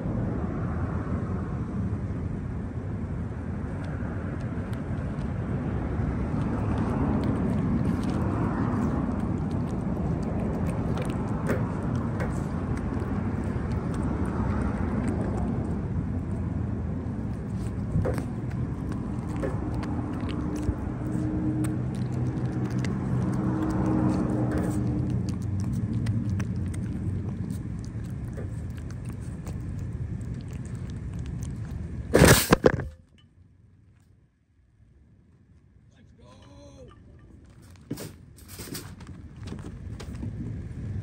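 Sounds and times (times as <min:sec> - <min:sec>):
engine-like hum: 0:00.0 - 0:41.0
low rumble of traffic: 0:00.0 - 0:41.0.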